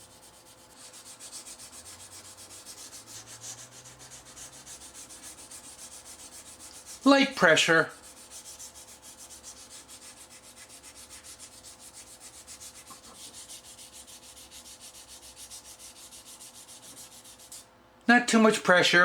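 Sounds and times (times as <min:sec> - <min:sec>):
sandpaper rasping on a handle: 0:00.0 - 0:17.7.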